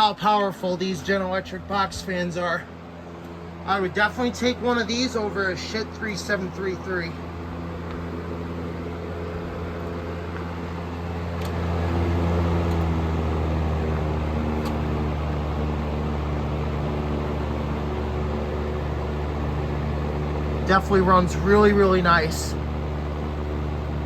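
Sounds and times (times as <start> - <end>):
fan motor hum: 0.0 - 24.0
rush of air from fan blades: 0.0 - 24.0.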